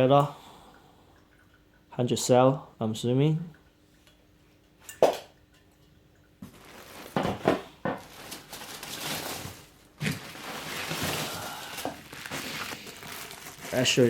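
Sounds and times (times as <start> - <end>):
packaging rustling and crinkling: 6.4 - 14.0.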